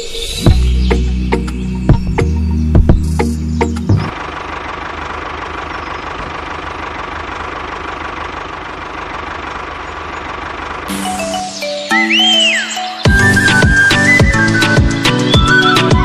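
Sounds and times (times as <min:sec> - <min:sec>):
music: 0:00.0 - 0:04.1, 0:10.9 - 0:16.0
small engine running: 0:02.8 - 0:11.9.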